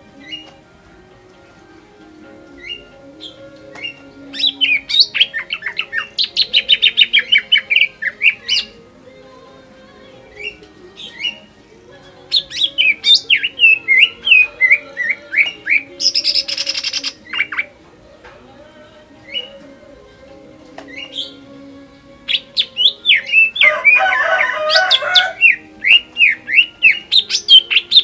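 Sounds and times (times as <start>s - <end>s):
bird singing whistled notes: 0.2s - 0.6s, 2.6s - 8.8s, 12.3s - 17.7s, 20.9s - 21.4s, 22.3s - 28.0s.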